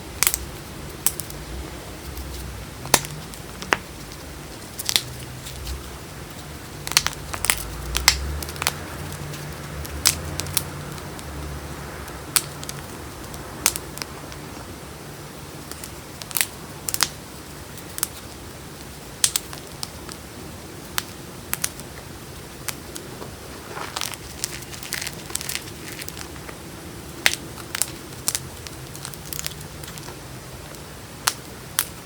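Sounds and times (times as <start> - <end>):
chalk crunching between fingers: 22.7 - 26.6.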